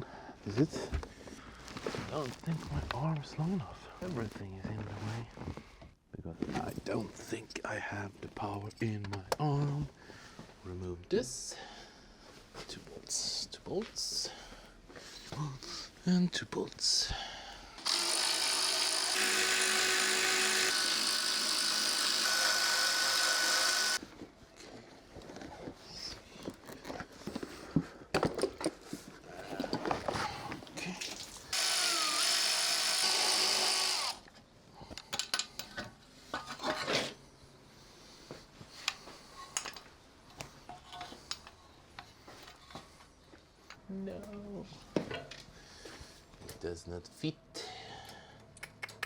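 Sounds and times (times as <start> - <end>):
power tool running: 17.8 - 24.0, 31.5 - 34.3
metallic clicks of bolts and tools: 35.0 - 35.9.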